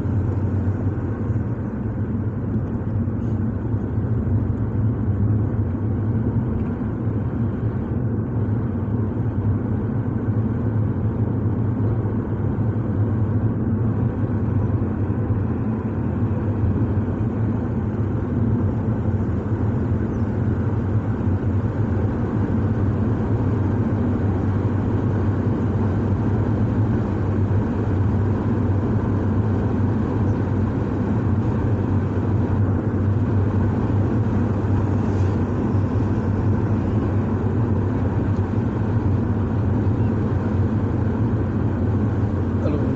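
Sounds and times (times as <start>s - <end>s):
car driving drone: 0.0s - 42.9s.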